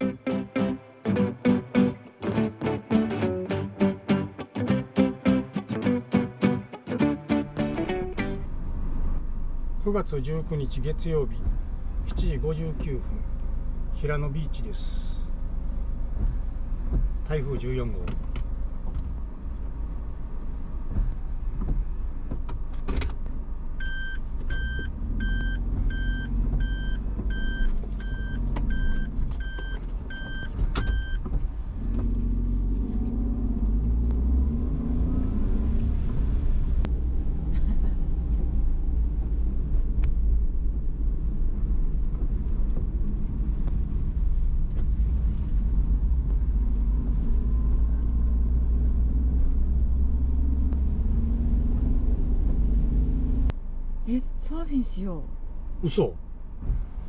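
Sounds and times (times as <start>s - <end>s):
car engine rumble: 0.0s - 57.0s
car warning chime beeping: 23.8s - 31.2s.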